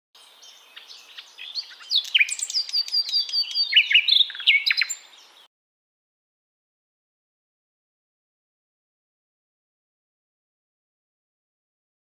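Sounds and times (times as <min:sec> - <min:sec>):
songbird singing: 0:00.2 - 0:05.5.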